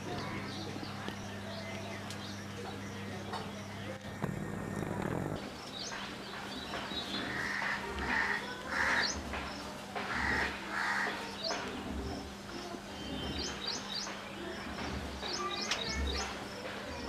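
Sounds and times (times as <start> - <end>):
harsh rasping bird calls: 6.7 - 9.4, 10.0 - 11.6.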